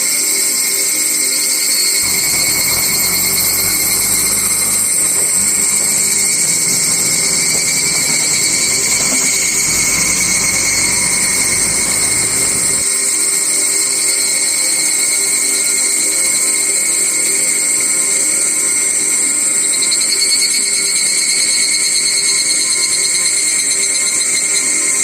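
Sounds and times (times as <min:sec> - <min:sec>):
insects buzzing: 0:01.9 - 0:13.0
low rumble: 0:02.0 - 0:12.9.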